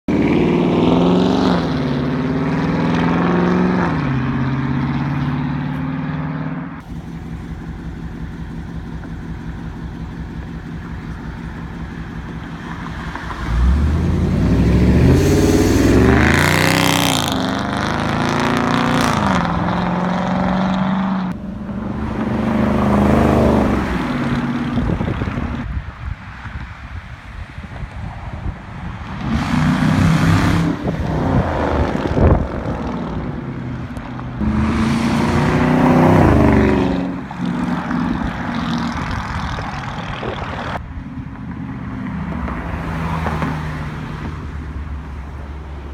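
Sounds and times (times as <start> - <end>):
car engine revving and burbling: 0.0 - 26.6, 28.7 - 45.9
car accelerating past: 12.6 - 25.6, 34.4 - 40.7.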